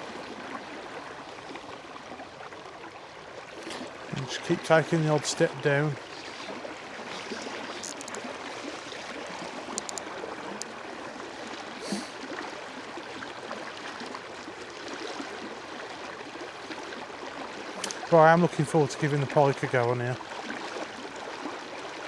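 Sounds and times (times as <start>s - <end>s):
river water rushing: 0.0s - 22.0s
faint clicks: 9.7s - 10.7s.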